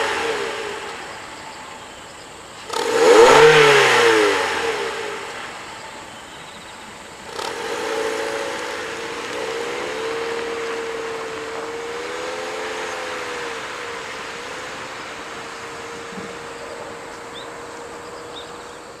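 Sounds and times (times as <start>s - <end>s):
car exhaust drone: 0.0s - 19.0s.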